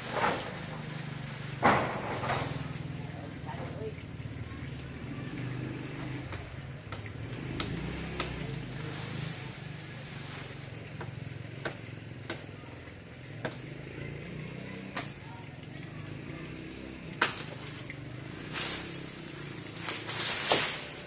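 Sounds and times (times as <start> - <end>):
chainsaw engine running: 4.5 - 12.4, 13.1 - 21.0.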